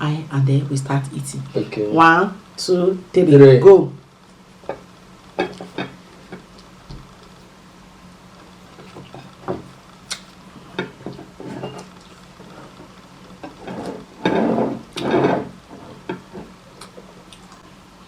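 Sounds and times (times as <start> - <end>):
dishes clicking and knocking: 5.4 - 6.5.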